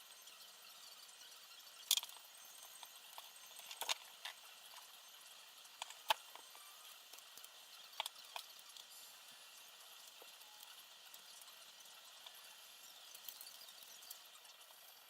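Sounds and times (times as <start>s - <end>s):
clicks of small parts and tools: 1.8s - 4.9s.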